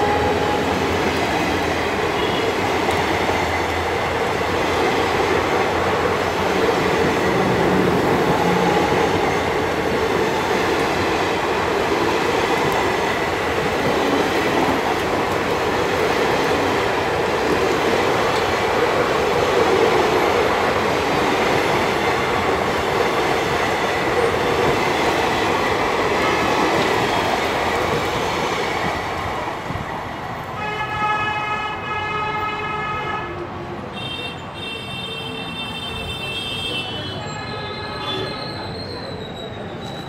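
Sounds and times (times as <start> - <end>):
train rushing past: 0.0 - 30.6.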